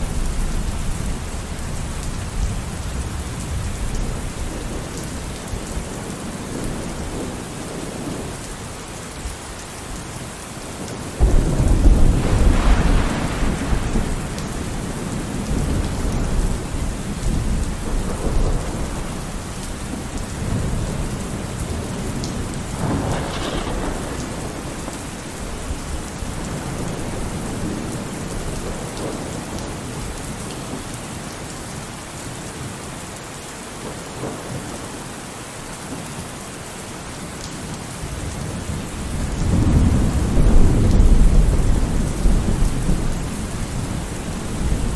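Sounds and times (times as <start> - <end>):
heavy rain: 0.0 - 44.9
thunder: 11.2 - 29.9, 38.1 - 44.9.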